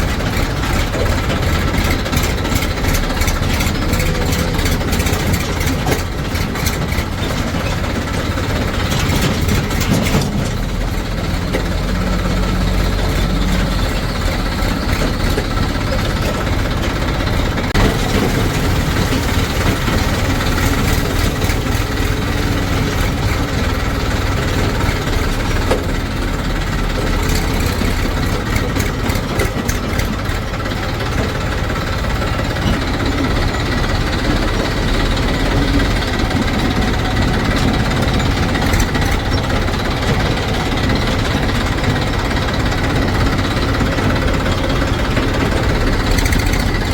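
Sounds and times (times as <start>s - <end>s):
metal clanks: 0.0s - 30.4s
diesel engine running: 0.0s - 46.9s.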